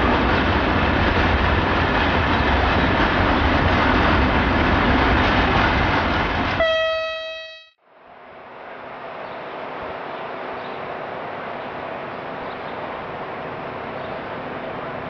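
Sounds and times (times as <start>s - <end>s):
train horn: 6.6s - 7.8s.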